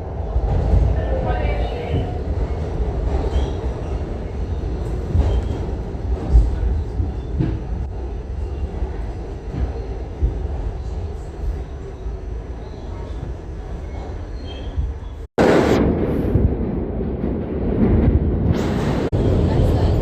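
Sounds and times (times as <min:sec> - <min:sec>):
subway train rumble: 0:00.0 - 0:20.0.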